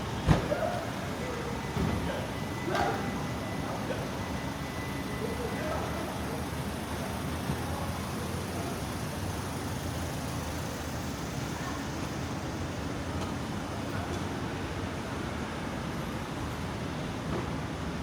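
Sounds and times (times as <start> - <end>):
faint voices: 0.2 - 12.5.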